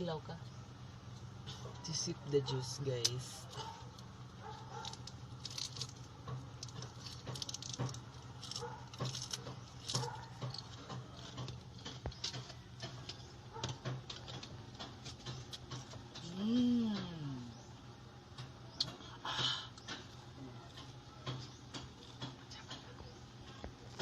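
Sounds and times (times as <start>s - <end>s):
leaves being chewed: 6.6s - 13.2s.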